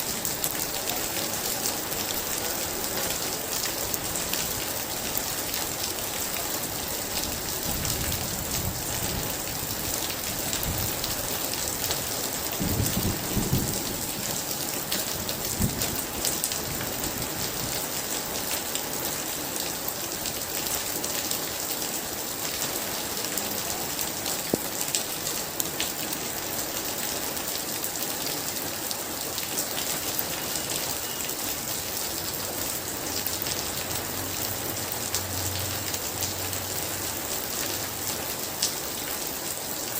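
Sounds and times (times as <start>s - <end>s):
very heavy rain: 0.0s - 39.9s
thunder rumbling: 12.4s - 14.5s.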